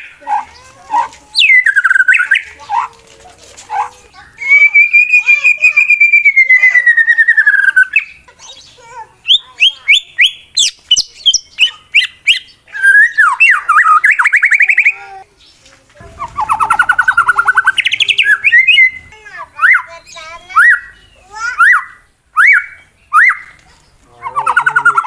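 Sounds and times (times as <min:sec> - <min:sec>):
bird singing whistled trills: 0:01.4 - 0:02.6, 0:04.1 - 0:08.2, 0:09.2 - 0:15.0, 0:16.0 - 0:23.6, 0:24.2 - 0:25.0.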